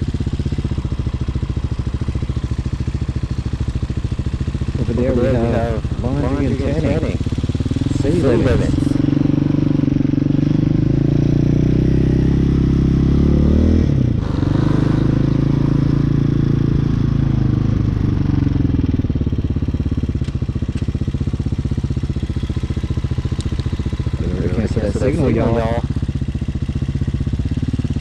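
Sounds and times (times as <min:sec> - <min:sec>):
dirt bike engine accelerating: 0:00.0 - 0:28.0.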